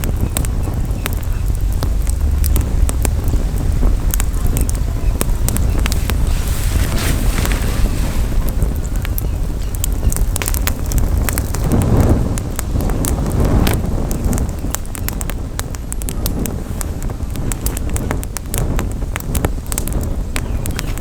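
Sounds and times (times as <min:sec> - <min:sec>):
campfire crackling and popping: 0:00.0 - 0:21.0
low rumble: 0:00.0 - 0:21.0.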